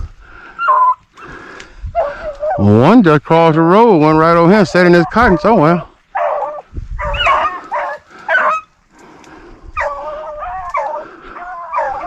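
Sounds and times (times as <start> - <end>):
dogs baying and yipping: 0.6 - 2.9, 4.8 - 8.8, 9.7 - 12.0.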